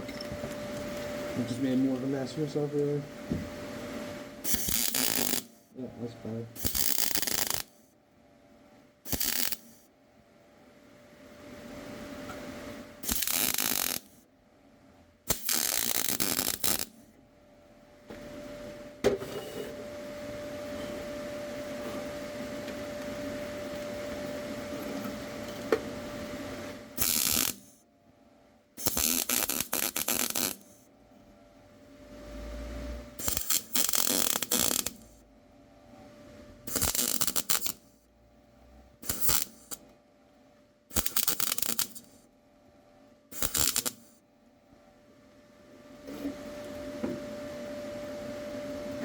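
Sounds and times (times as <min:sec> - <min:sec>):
steady hum: 0:00.0 - 0:49.0
welder arc crackling: 0:04.4 - 0:05.7, 0:06.5 - 0:07.9, 0:09.1 - 0:09.8, 0:13.0 - 0:14.2, 0:15.3 - 0:17.0, 0:26.7 - 0:27.8, 0:28.8 - 0:30.8, 0:33.2 - 0:35.2, 0:36.7 - 0:38.0, 0:39.0 - 0:39.8, 0:40.9 - 0:42.2, 0:43.3 - 0:44.2.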